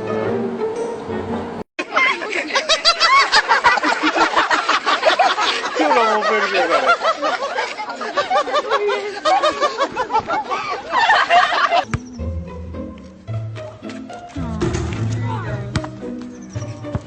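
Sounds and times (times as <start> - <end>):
small birds chirping: 11.9 - 12.4, 16.0 - 17.0.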